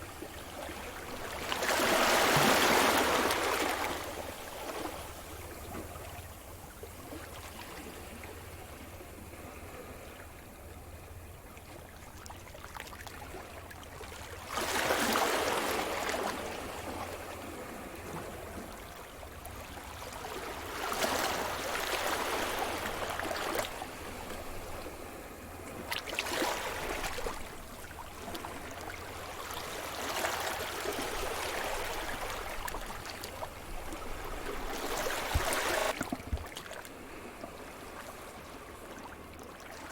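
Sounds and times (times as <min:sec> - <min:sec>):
waves breaking on shore: 0:00.0 - 0:06.2, 0:19.6 - 0:39.9.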